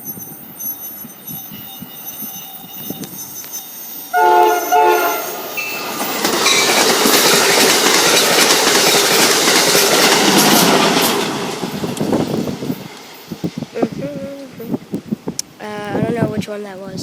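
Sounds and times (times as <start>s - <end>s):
train rushing past: 0.0s - 15.2s
train air horn blasts: 4.1s - 5.6s.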